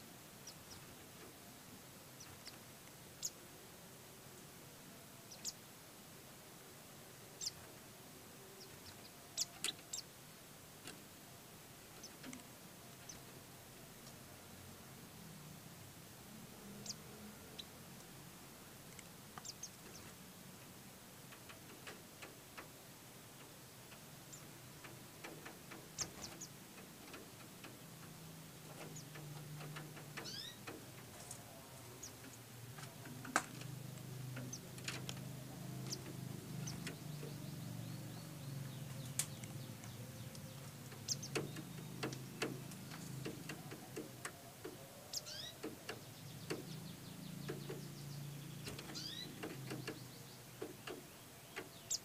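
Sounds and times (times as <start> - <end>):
birds chirping: 0.3 - 5.7, 6.5 - 52.0
faint clicks: 11.9 - 13.4, 21.3 - 22.7, 23.4 - 31.4, 32.0 - 37.4, 38.6 - 46.8.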